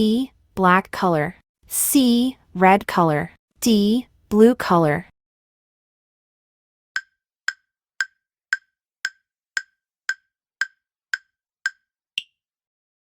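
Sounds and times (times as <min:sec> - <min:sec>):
countdown timer ticks: 0:07.0 - 0:12.4.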